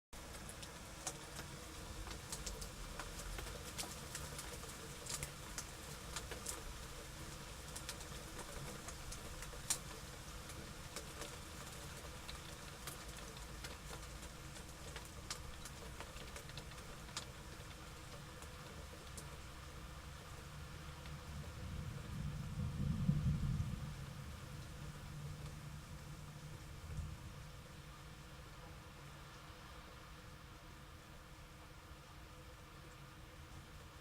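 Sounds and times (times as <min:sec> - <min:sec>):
raindrop ticks: 0:00.2 - 0:27.1
rain hiss: 0:00.2 - 0:34.0.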